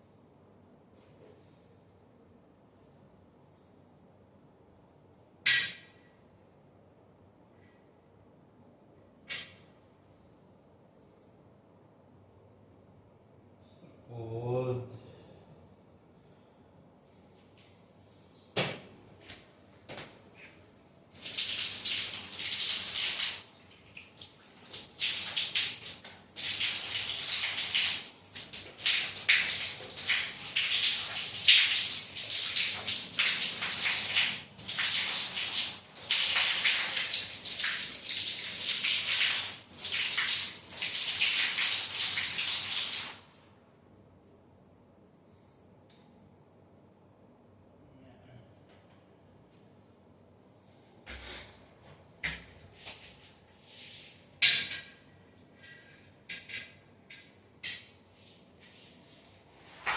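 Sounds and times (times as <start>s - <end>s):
water rushing in bursts: 21.2s - 43.4s.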